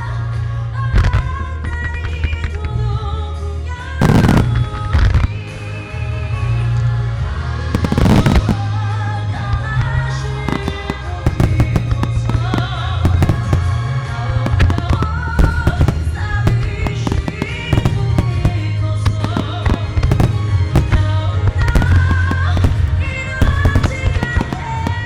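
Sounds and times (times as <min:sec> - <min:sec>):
loud music with heavy bass: 0:04.0 - 0:04.5, 0:07.8 - 0:08.7
fireworks bursting and crackling: 0:04.0 - 0:05.8, 0:07.8 - 0:25.0.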